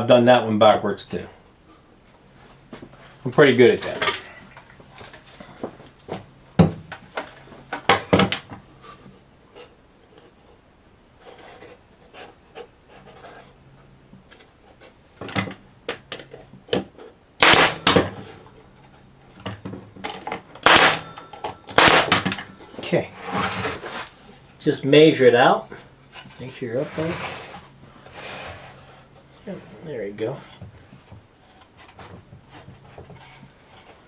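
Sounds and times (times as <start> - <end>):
wooden boards knocking and clattering: 3.9 - 8.6, 15.2 - 18.4
wood rubbing: 6.9 - 34.0.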